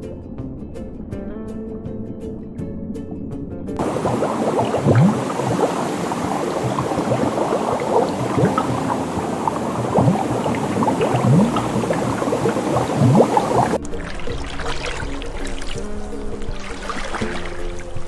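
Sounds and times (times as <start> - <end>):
water bubbling and splashing: 3.8 - 13.8.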